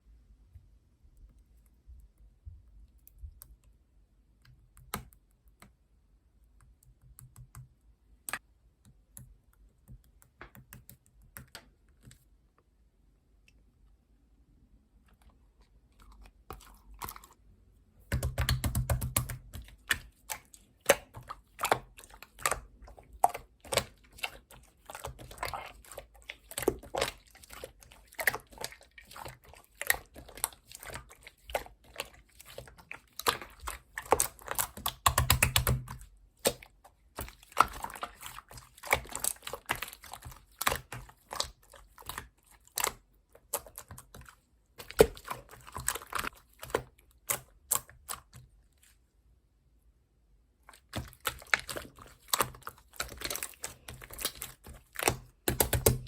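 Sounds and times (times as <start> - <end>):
slime squished by hand: 18.0 - 49.0, 50.6 - 56.0.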